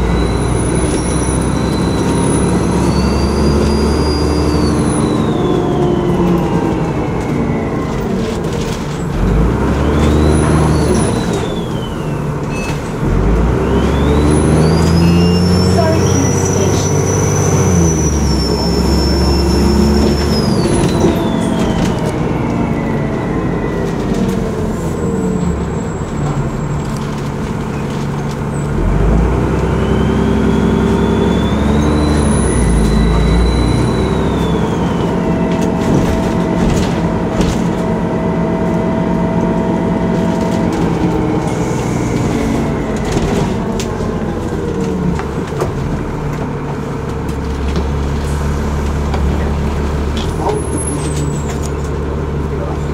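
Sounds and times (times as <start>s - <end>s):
high turbo whistle: 0.0s - 7.9s, 13.6s - 24.0s, 29.8s - 35.6s
bus diesel engine running: 0.0s - 52.9s.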